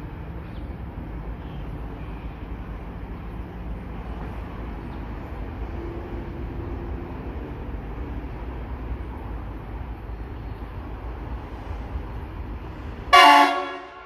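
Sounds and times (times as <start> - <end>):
distant train rumble: 0.0 - 14.0
faint engine hum: 0.0 - 14.0
higher engine tone: 11.8 - 14.0.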